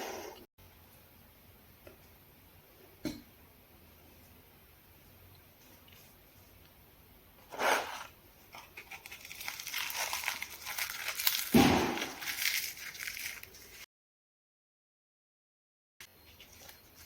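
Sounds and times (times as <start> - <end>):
crunching fried food: 8.5 - 13.8.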